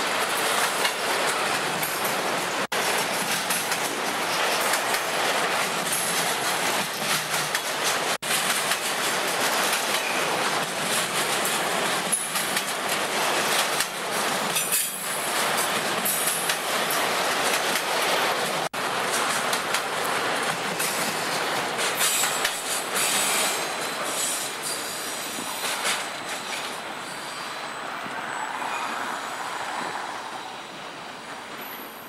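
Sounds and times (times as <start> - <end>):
freight train wheels on rail: 0.0 - 32.0.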